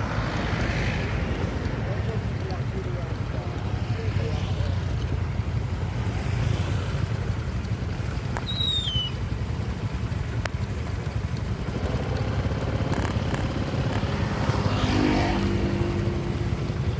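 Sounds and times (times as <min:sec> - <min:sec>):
passing vehicle engine: 0:00.0 - 0:16.9
traffic: 0:00.0 - 0:16.9
wind: 0:00.0 - 0:16.9
short falling whistle: 0:08.4 - 0:09.2.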